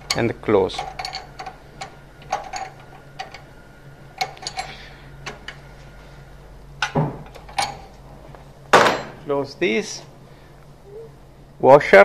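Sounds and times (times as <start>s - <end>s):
metal parts clicking and clinking: 0.0s - 3.5s, 4.2s - 5.6s, 6.8s - 8.0s.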